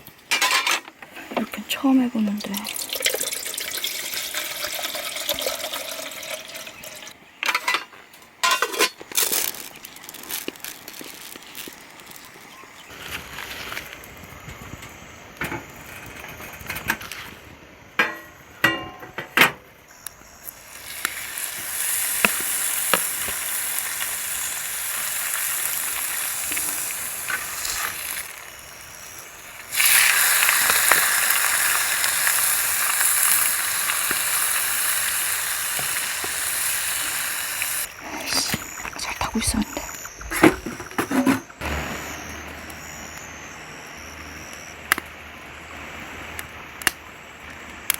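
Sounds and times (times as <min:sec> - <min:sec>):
beef sizzling over campfire: 0:02.7 - 0:07.1, 0:09.0 - 0:15.2, 0:19.9 - 0:40.9.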